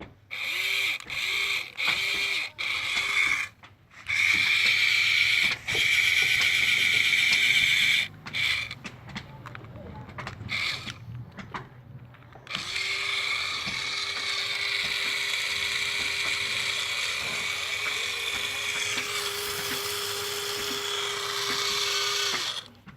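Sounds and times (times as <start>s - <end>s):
small electric motor whirring: 0.0s - 8.9s, 10.5s - 11.1s, 12.4s - 22.8s.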